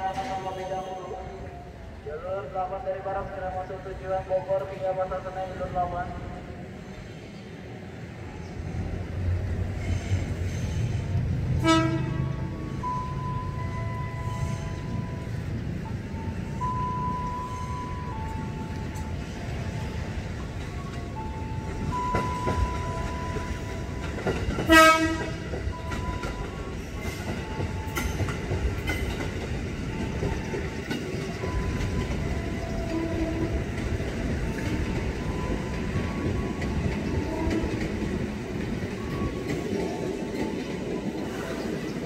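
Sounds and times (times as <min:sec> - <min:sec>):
train wheels rumbling on rail: 0:00.0 - 0:42.0
train horn blast: 0:11.6 - 0:12.6, 0:24.7 - 0:25.4.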